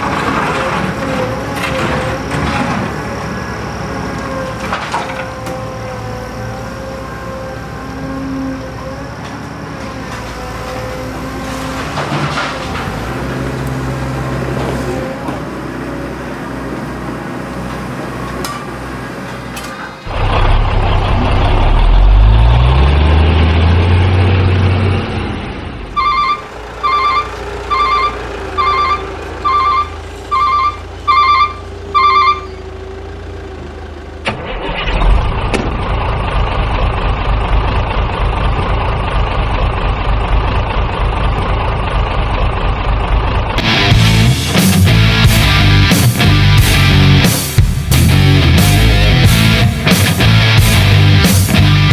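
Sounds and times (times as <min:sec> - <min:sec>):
diesel engine revving: 0:00.0 - 0:51.9
reversing alarm beeping: 0:26.0 - 0:32.8.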